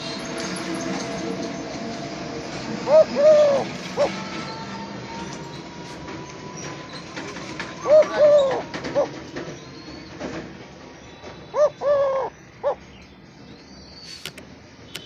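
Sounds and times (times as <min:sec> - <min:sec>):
dove cooing: 0:02.7 - 0:04.5, 0:07.6 - 0:09.2, 0:11.5 - 0:12.9.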